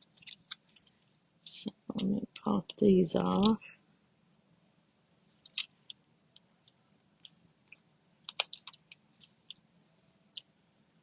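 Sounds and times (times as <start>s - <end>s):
glue dots peeled off backing: 5.4s - 9.6s.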